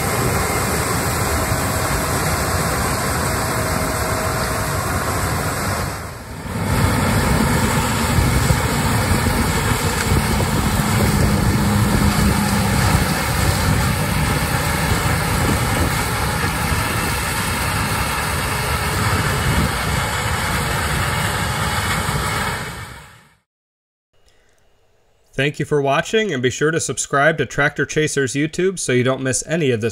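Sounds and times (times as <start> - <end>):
harvester engine drone: 0.0 - 23.4.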